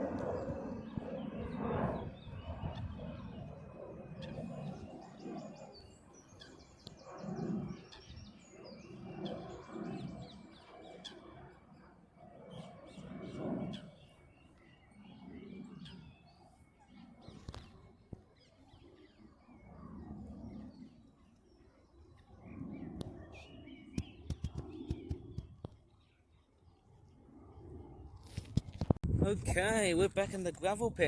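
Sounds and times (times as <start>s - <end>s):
small birds chirping: 20.4s - 26.4s.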